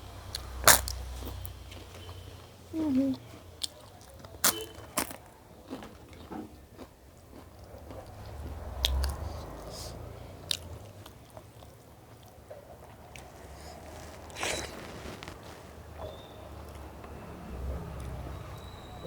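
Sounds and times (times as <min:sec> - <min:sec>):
person chewing: 0:00.3 - 0:02.0, 0:03.1 - 0:15.6
crisp crunches: 0:00.6 - 0:01.5, 0:13.2 - 0:15.8.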